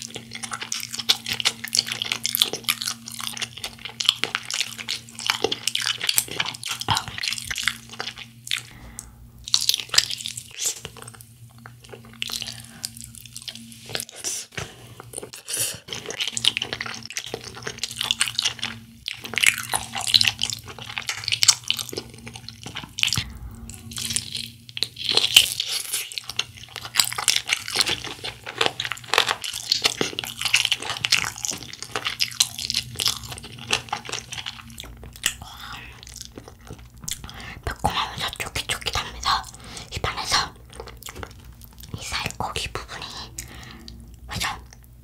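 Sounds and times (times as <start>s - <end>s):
chewing fried chicken: 0.0s - 8.8s, 9.5s - 45.0s.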